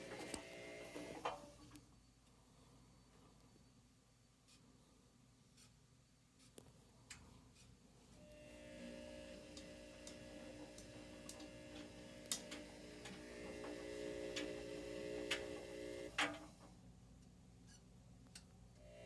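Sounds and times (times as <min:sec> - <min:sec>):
washer dryer humming: 0:00.0 - 0:01.4, 0:08.2 - 0:16.4.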